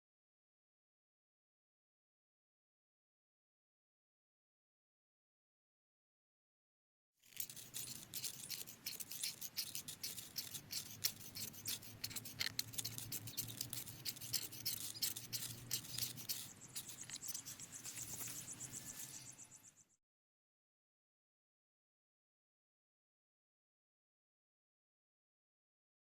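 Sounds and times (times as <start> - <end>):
crackling and scraping clicks: 7.3 - 19.2.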